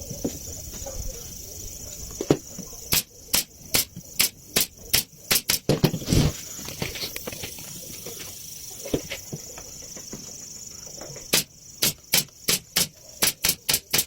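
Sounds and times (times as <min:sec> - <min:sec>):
steady high hiss: 0:00.0 - 0:14.0
sharp knocks: 0:11.3 - 0:14.0.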